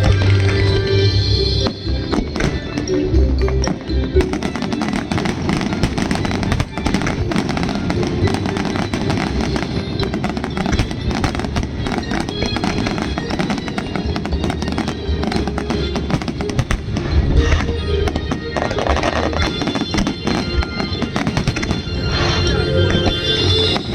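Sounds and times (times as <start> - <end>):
music playing: 0.0 - 23.9
fireworks crackling and popping: 1.6 - 23.9.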